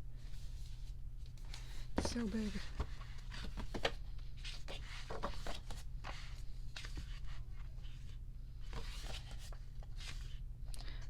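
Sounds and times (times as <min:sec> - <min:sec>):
book pages rustling: 0:00.3 - 0:10.4.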